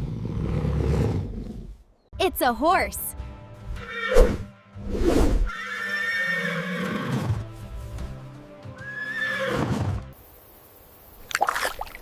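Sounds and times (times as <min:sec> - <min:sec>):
horse neighing: 0:03.8 - 0:04.2, 0:05.5 - 0:07.3, 0:08.8 - 0:09.9.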